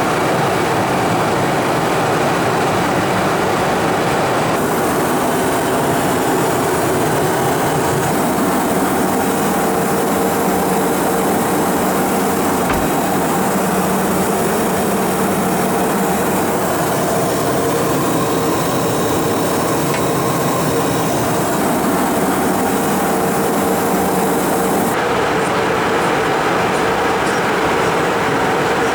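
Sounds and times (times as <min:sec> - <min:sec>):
jet engine hum and air rush: 0:04.5 - 0:25.0
steady tones: 0:04.6 - 0:25.0.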